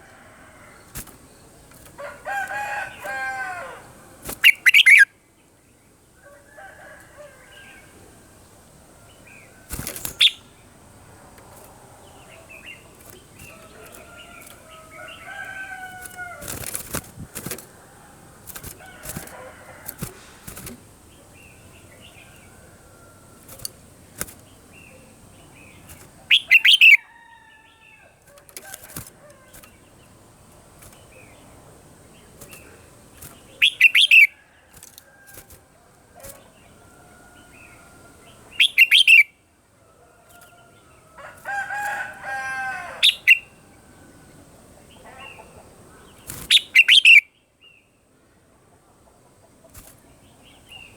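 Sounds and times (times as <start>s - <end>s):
birds singing whistled phrases: 4.4s - 5.2s, 10.0s - 10.6s, 24.8s - 27.1s, 33.5s - 34.4s, 38.5s - 39.4s, 43.0s - 43.6s, 46.3s - 47.4s.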